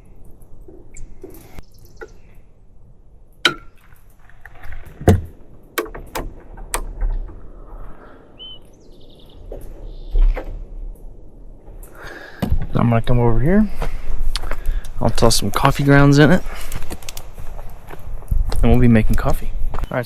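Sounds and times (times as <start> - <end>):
bird chirping: 0.9 - 2.6, 7.9 - 10.6.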